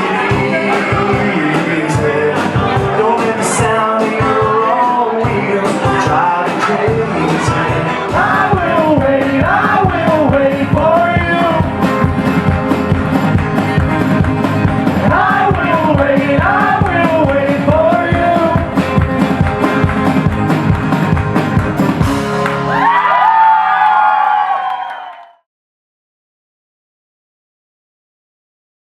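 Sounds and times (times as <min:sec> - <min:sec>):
lead vocal singing: 0:00.0 - 0:12.1, 0:14.8 - 0:19.0
steady drum beat: 0:00.0 - 0:22.7
pop rock band playing: 0:00.0 - 0:23.5.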